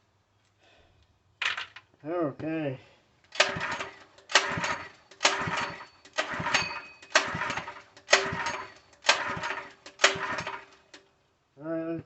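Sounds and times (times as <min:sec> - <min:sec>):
recoil starter pulls cranking engine: 0:03.3 - 0:11.0.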